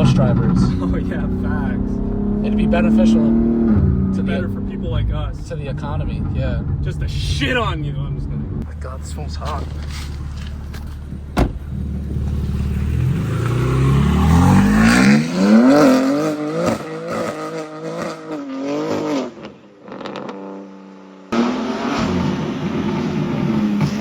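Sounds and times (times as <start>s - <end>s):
car engine revving hard: 0.0s - 5.1s, 11.3s - 24.0s
road noise: 0.0s - 24.0s.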